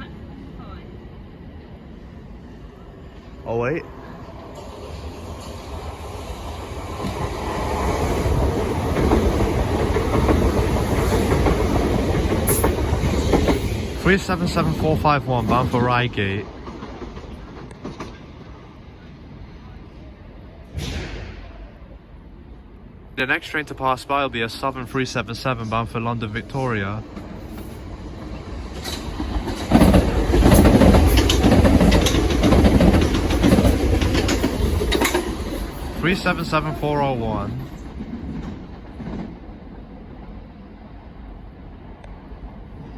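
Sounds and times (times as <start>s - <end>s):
electric train passing: 0.0s - 42.9s
wheels clicking over rail joints: 6.9s - 18.6s, 27.0s - 36.8s.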